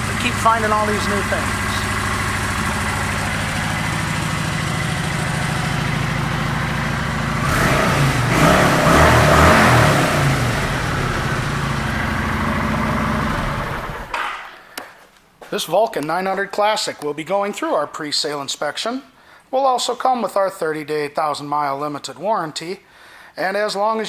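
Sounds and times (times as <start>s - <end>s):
motorcycle engine idling and revving: 0.0s - 14.2s.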